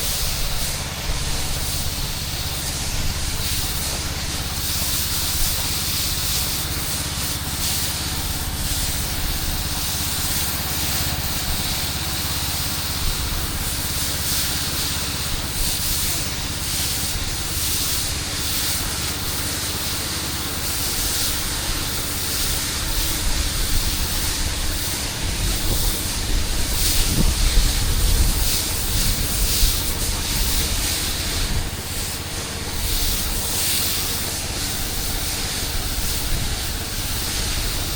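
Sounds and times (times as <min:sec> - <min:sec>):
engine humming: 0:00.0 - 0:14.0
pressure washer water spraying: 0:00.0 - 0:37.9.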